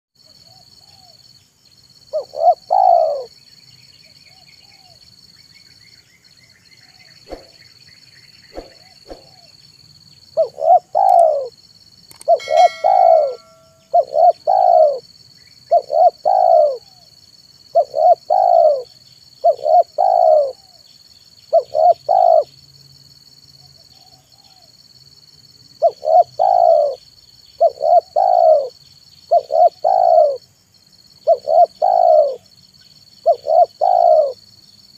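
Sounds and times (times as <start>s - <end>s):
dove cooing: 2.1s - 3.3s, 8.6s - 9.5s, 10.4s - 11.5s, 12.2s - 15.0s, 15.7s - 17.1s, 17.8s - 20.8s, 21.5s - 22.5s, 25.8s - 27.0s, 27.6s - 28.7s, 29.3s - 30.4s, 31.2s - 32.4s, 33.2s - 34.4s
faint steady high tone: 12.1s - 15.1s.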